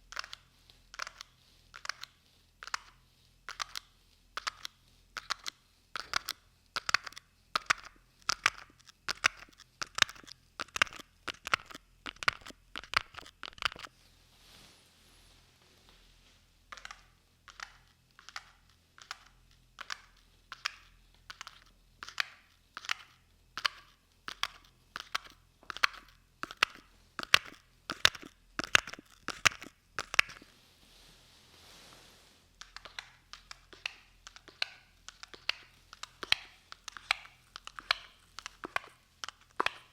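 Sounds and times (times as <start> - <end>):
crisp crunching taps: 5.2 - 13.9, 25.0 - 30.5.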